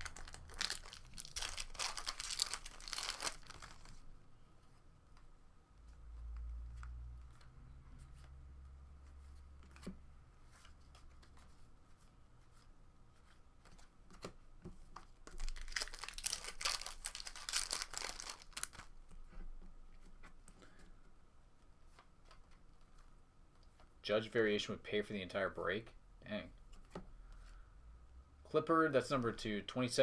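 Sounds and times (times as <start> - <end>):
wrapper tearing and crinkling: 0.0 - 4.0, 15.3 - 18.9.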